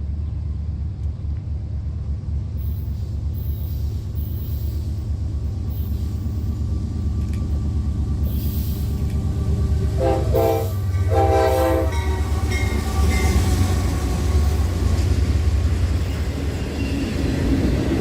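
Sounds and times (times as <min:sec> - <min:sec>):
train low rumble: 0:00.0 - 0:18.0
locomotive air horn: 0:10.0 - 0:12.6.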